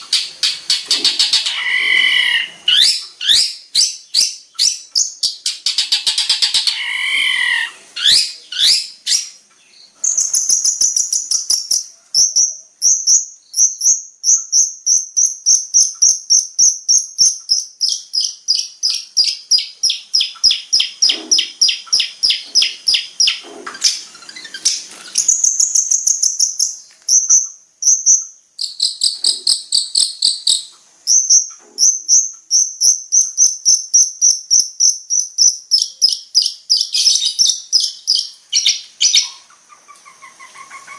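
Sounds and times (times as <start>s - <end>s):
shrike singing high chirps: 10.0s - 39.4s.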